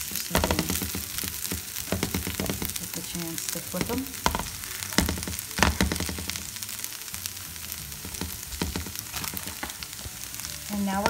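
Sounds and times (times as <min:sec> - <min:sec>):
hash browns sizzling in a pan: 0:00.0 - 0:11.0
pan knocking on stove: 0:00.1 - 0:06.6, 0:08.0 - 0:10.2.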